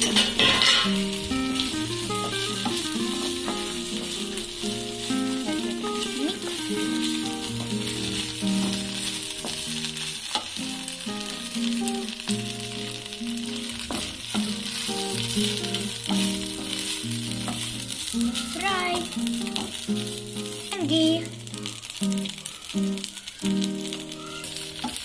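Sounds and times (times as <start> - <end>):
background music: 0.0 - 25.0
food sizzling in oil: 0.0 - 25.0
wooden spatula tapping pan: 8.5 - 10.5, 13.7 - 16.8.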